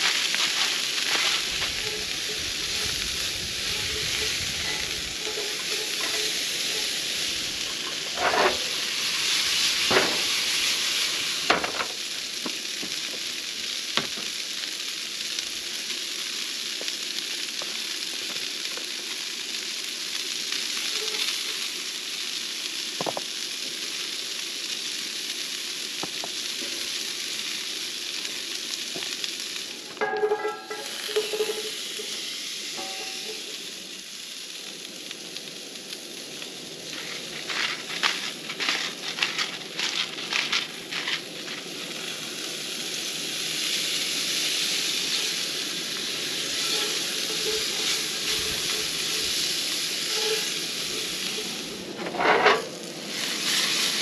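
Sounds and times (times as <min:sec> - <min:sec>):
vegetables clattering into pan: 0:00.0 - 0:02.9, 0:03.7 - 0:08.9, 0:09.6 - 0:10.6, 0:11.4 - 0:12.1, 0:29.9 - 0:32.1, 0:32.8 - 0:33.5, 0:36.9 - 0:41.9, 0:46.1 - 0:52.8
vegetables sizzling in a skillet: 0:00.0 - 0:54.0.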